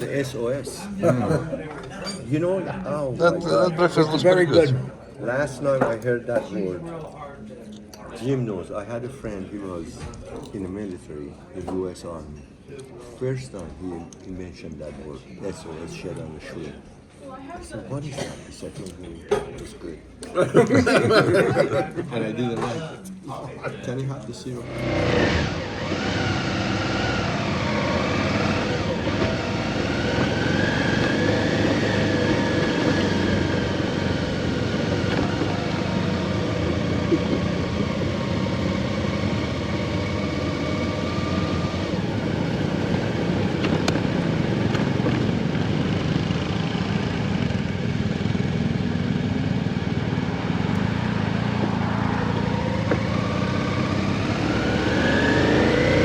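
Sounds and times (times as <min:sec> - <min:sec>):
rushing noise: 0:24.6 - 0:37.5
motorcycle engine running: 0:24.6 - 0:56.0.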